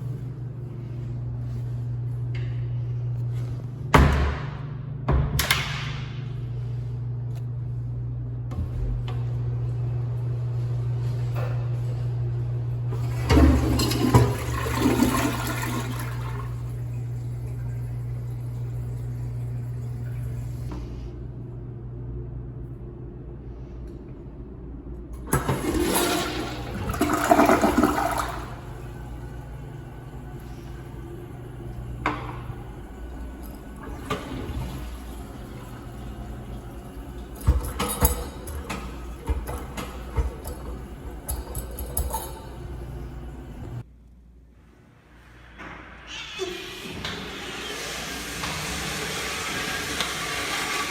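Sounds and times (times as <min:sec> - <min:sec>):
steady low hum: 0:00.0 - 0:46.1
toilet flushing: 0:12.9 - 0:20.7, 0:25.2 - 0:43.9, 0:45.6 - 0:50.9.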